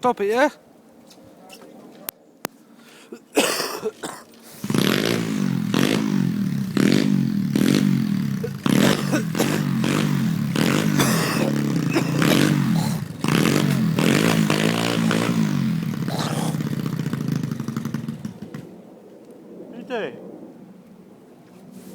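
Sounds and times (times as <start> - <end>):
motorbike engine revving: 3.4 - 18.8.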